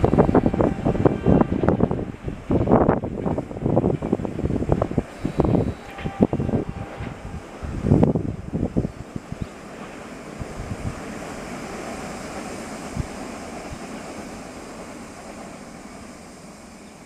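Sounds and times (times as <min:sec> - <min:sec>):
wind thumps on microphone: 0:00.0 - 0:09.5, 0:10.4 - 0:11.1
train wheel rumble on rails: 0:00.0 - 0:17.0.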